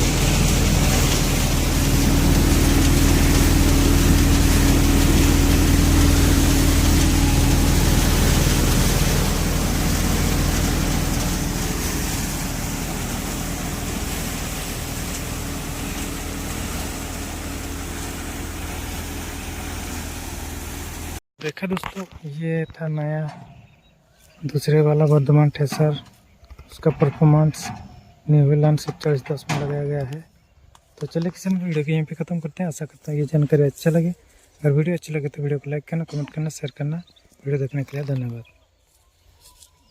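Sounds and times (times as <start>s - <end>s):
thresher hiss: 0.0s - 21.2s
tractor diesel engine drone: 0.0s - 21.2s.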